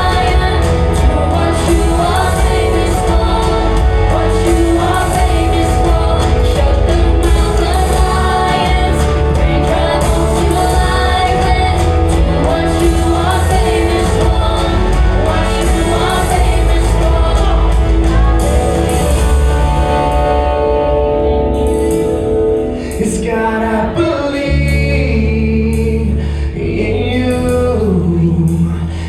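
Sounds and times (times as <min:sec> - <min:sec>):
voices singing: 0:00.0 - 0:20.6
worship band playing: 0:00.0 - 0:29.0.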